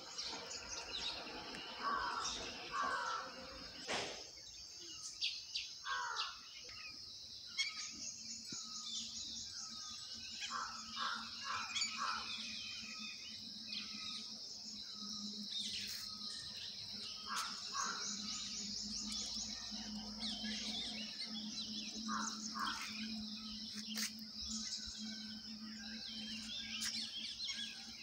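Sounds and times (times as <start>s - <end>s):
birds chirping and calling: 0.0s - 28.0s
steady high-pitched drone: 8.1s - 28.0s.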